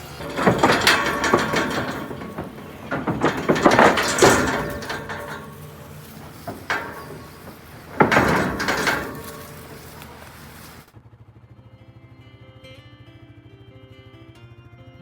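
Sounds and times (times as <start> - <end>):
steel gates banging and rattling: 0.0 - 10.8.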